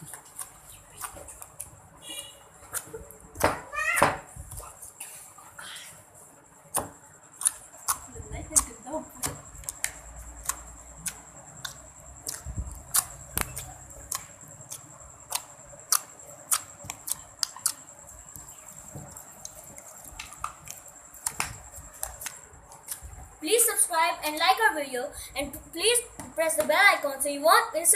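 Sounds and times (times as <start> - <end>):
slime clicking and popping: 8.6 - 17.8.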